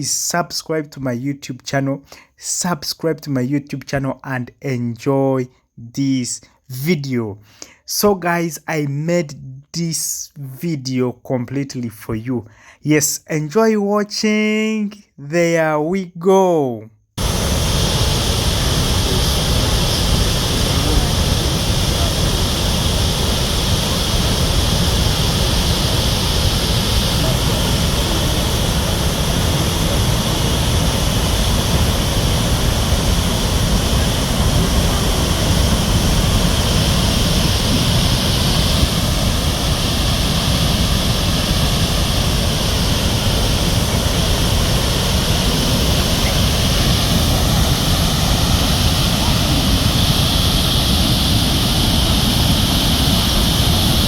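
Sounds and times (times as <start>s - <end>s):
waterfall rushing: 17.2s - 54.0s.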